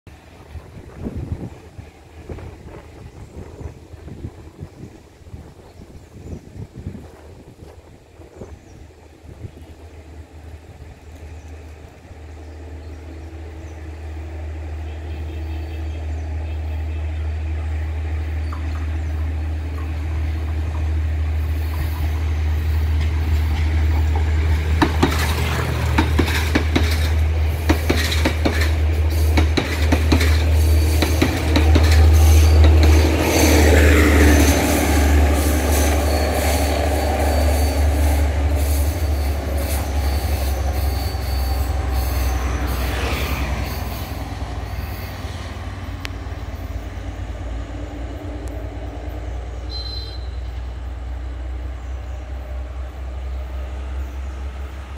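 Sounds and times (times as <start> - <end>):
train engine drone: 0.1 - 54.9
wheel clicks over rail joints: 23.6 - 28.8.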